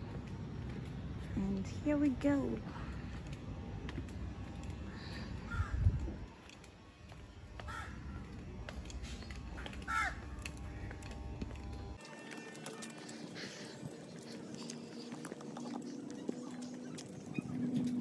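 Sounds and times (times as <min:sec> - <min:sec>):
low rumbling noise: 0:00.0 - 0:12.0.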